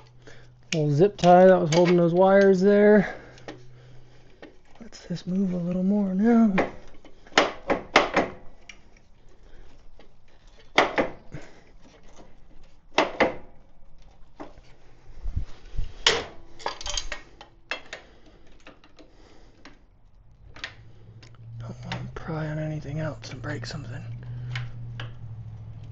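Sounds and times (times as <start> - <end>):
tools clicking and knocking: 0.0 - 2.6, 16.0 - 19.8.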